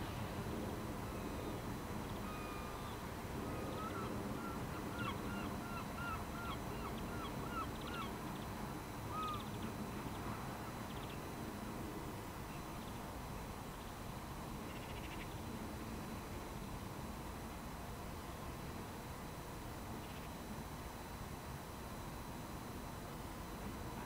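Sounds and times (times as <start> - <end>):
bird calling: 2.1 - 8.5, 9.1 - 9.6.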